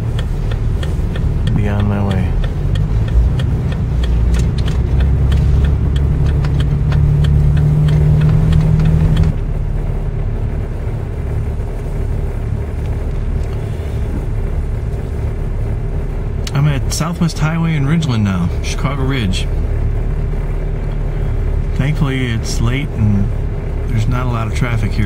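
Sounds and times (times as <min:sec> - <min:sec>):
turn signal clicking: 0:00.0 - 0:09.5, 0:12.6 - 0:15.4
engine and road drone: 0:00.0 - 0:25.0
low hum: 0:00.0 - 0:25.0.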